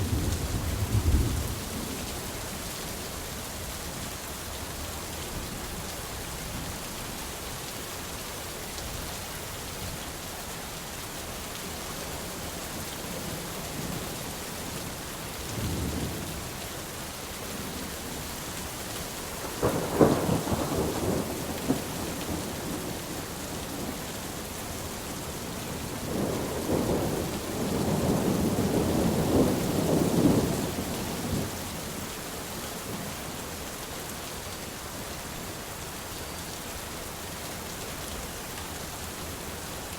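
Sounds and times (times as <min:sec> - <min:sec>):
thunder rumbling: 0:00.0 - 0:02.0, 0:26.0 - 0:31.5
steady rain: 0:00.0 - 0:39.9.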